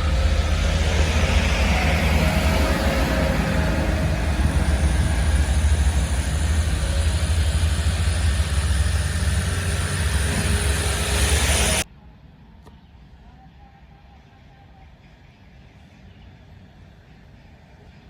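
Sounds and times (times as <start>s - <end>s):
heavy truck engine rumbling: 0.0s - 11.8s
road and tyre noise: 0.0s - 11.9s.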